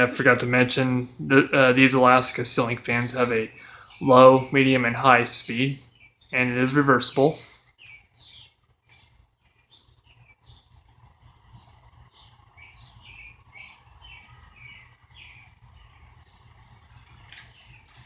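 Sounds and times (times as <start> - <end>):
ceiling fan humming: 0.0 - 18.0
small bird chirping: 5.6 - 18.0.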